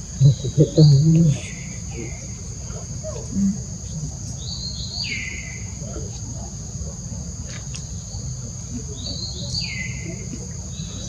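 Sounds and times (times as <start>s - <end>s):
bird calling: 0.0s - 3.6s
high-pitched insect drone: 0.0s - 11.0s.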